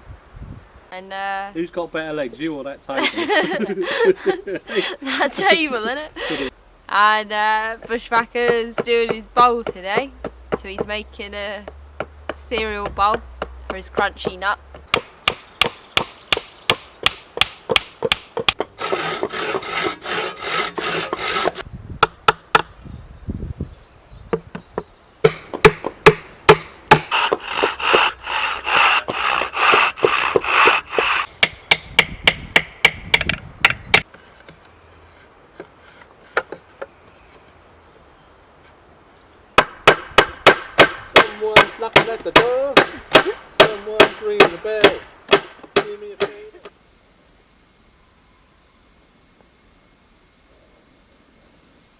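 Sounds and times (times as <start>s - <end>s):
sawing or rasping on wood: 18.1s - 21.7s, 25.3s - 33.0s, 40.5s - 46.0s.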